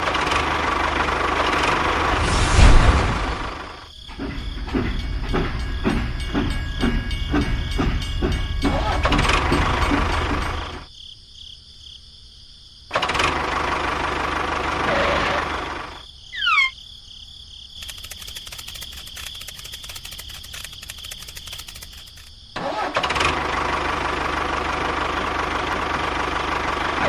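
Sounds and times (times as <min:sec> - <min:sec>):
small engine running: 0:00.0 - 0:02.3, 0:12.9 - 0:16.0, 0:17.8 - 0:27.0
rapid ticking: 0:17.8 - 0:22.4.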